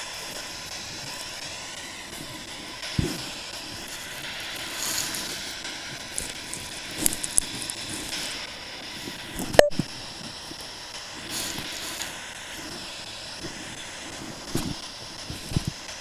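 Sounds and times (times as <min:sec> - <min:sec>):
crackling clicks: 0:02.8 - 0:10.7
footsteps on a trail: 0:03.0 - 0:08.2.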